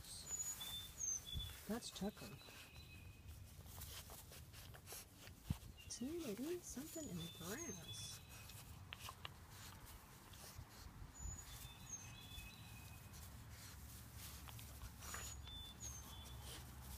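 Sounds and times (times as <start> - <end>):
faint whistled bird chirps: 0.0 - 1.7, 11.2 - 13.1, 15.1 - 16.7.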